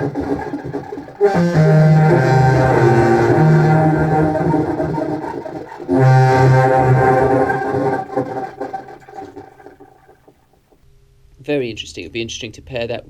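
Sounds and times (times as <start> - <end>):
clarinet low sustained notes: 0.0 - 9.7.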